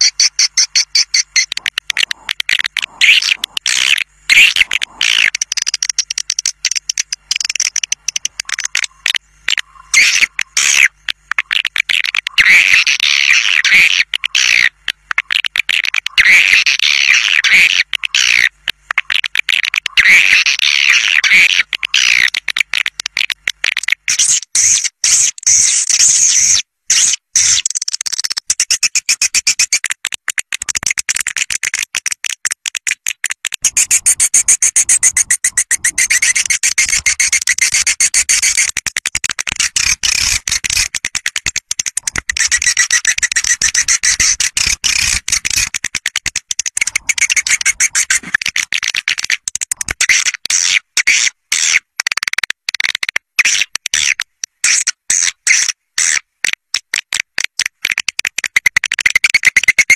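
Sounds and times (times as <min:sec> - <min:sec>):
swiftlet calls twittering: 0:00.0 - 0:26.4, 0:33.6 - 0:38.8, 0:39.4 - 0:45.8, 0:46.7 - 0:48.4.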